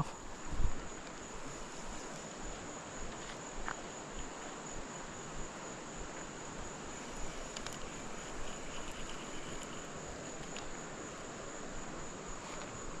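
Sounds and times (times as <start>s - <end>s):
background hiss: 0.0s - 13.0s
high-pitched insect chorus: 0.0s - 13.0s
faint ticks: 7.0s - 10.8s.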